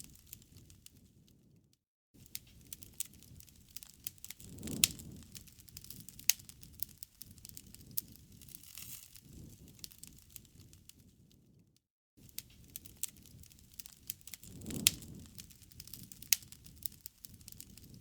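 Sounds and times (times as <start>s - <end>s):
low rumble of flames: 0.0s - 1.6s, 2.2s - 11.6s, 12.2s - 18.0s
wood snapping and popping: 12.4s - 18.0s.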